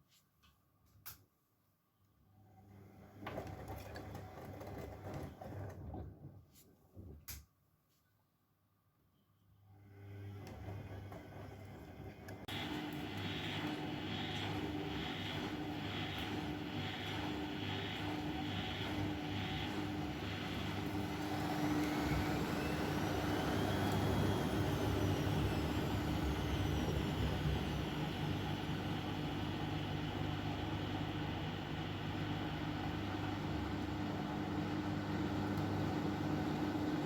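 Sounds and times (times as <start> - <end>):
washing machine pulsing: 2.5 - 6.4, 9.8 - 37.0
washing machine motor whine: 9.7 - 37.0.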